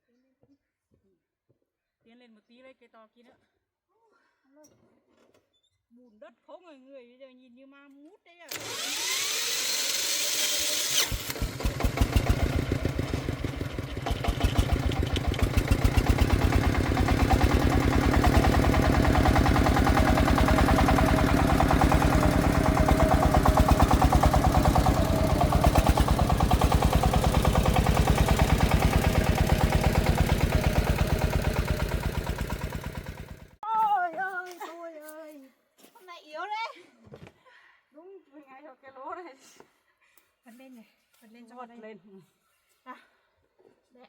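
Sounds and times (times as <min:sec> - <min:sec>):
diesel engine puttering: 0:08.5 - 0:33.6.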